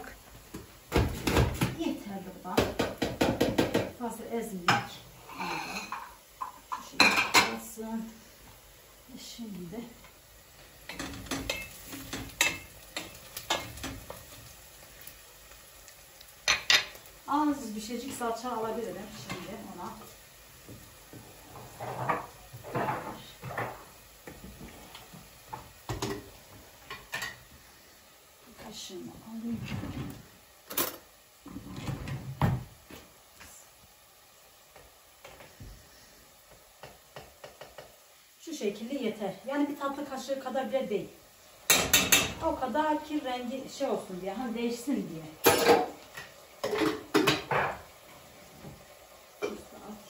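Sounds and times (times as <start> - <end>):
kitchen utensils clattering: 10.8 - 14.0, 21.5 - 23.9, 45.4 - 47.8.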